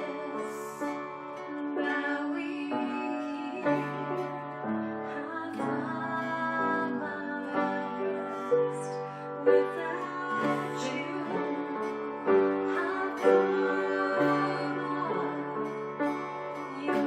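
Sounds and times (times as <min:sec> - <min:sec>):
piano accompaniment: 0:00.0 - 0:17.0
worship chorus singing: 0:05.2 - 0:17.0.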